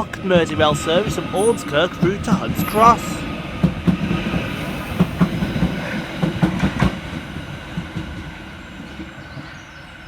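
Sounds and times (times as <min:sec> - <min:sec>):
electric train pulling away: 0:00.0 - 0:09.2
train wheels clicking on track: 0:00.0 - 0:10.0.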